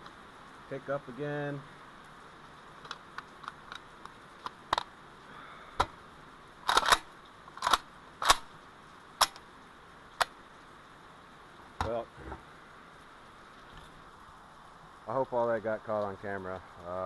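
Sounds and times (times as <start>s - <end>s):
raindrops tapping on camera: 1.9s - 10.7s, 15.6s - 17.0s.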